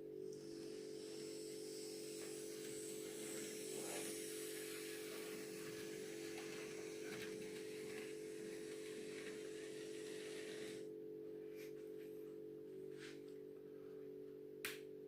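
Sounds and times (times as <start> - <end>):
model railway electric hum: 0.0 - 11.0.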